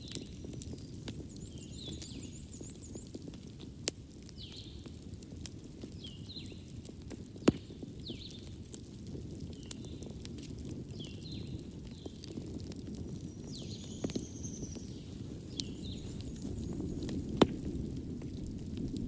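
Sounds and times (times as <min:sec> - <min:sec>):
wood fire crackling: 0:00.0 - 0:19.0
sharp pops of fire: 0:06.8 - 0:19.0.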